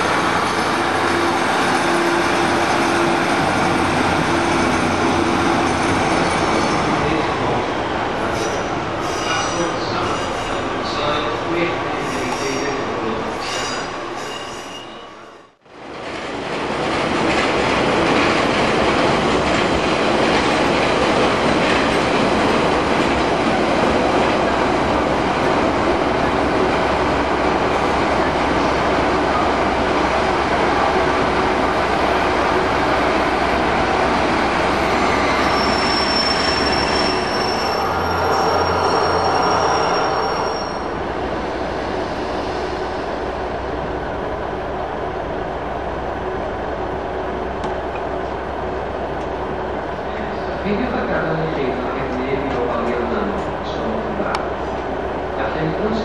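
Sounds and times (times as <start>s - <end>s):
train wheels rumbling on rail: 0.0s - 56.0s
high wheel squeal: 8.3s - 10.7s, 34.9s - 41.0s.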